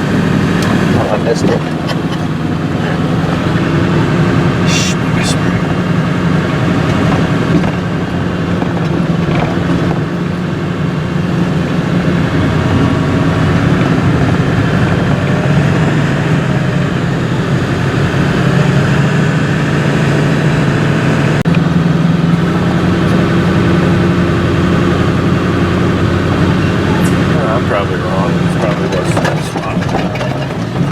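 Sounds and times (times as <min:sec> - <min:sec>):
vehicle engine and road noise: 0:00.0 - 0:30.9.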